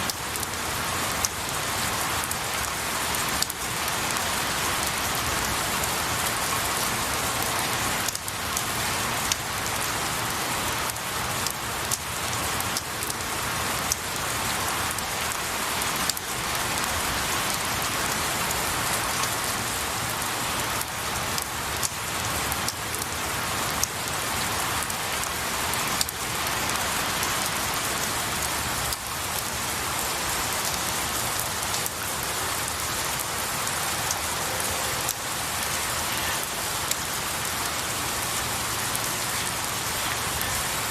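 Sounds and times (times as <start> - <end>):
rain pattering on trees: 0.0 - 40.9.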